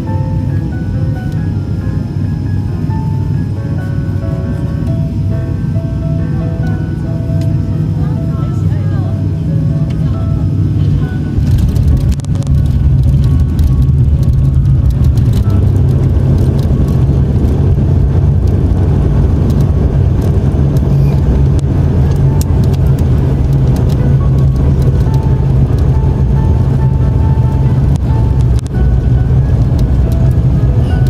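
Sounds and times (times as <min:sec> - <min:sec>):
airliner cabin rumble: 0:00.0 - 0:31.0
rattles and knocks: 0:11.4 - 0:31.0.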